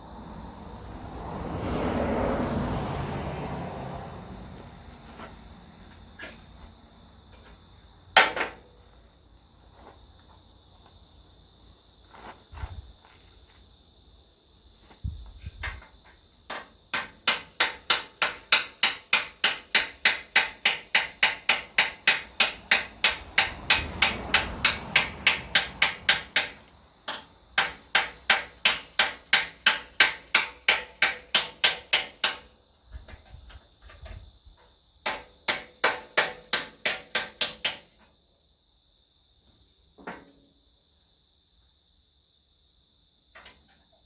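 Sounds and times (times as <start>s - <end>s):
hammer blows: 17.0s - 32.4s.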